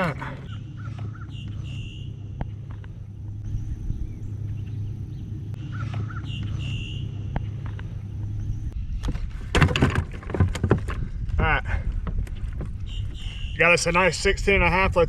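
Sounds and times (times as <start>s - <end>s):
outdoor rumble on water: 0.0s - 13.5s
bird wavering cry: 5.6s - 7.2s
sharp knocks and splashing: 9.0s - 11.1s.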